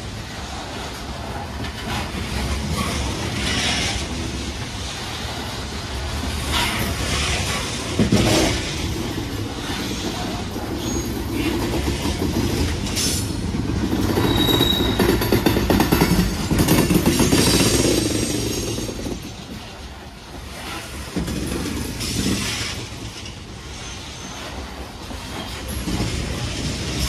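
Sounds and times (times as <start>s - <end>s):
train wheels rumbling and clacking: 0.0s - 27.0s
high wheel squeal: 10.7s - 11.6s, 14.0s - 15.5s, 23.6s - 26.1s.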